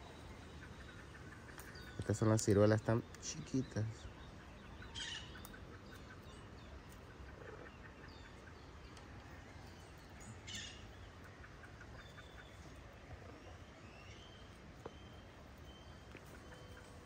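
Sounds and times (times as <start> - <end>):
small bird chirps: 0.0 - 17.0.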